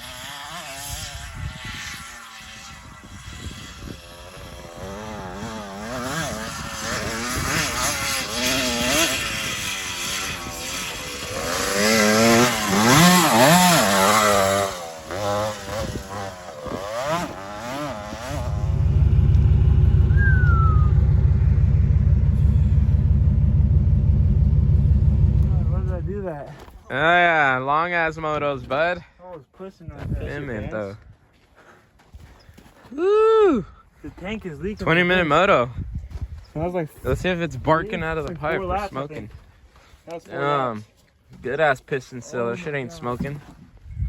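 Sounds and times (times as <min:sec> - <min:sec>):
motorbike engine revving: 0:00.0 - 0:26.5.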